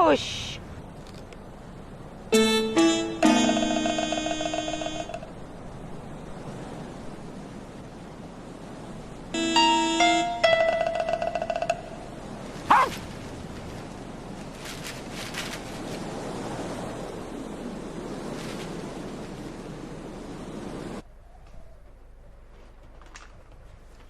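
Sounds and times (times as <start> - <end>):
bright musical notes: 2.4 - 5.3, 9.4 - 12.1
sliding tone: 2.4 - 5.4.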